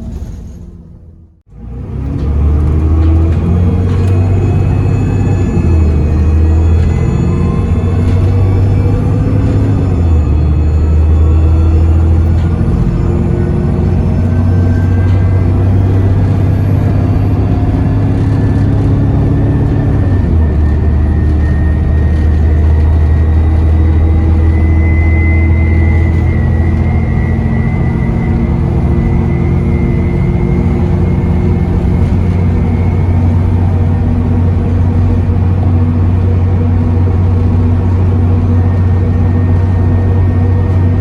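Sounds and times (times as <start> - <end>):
bus diesel engine: 0.0 - 41.0
turbo whistle: 19.7 - 33.8.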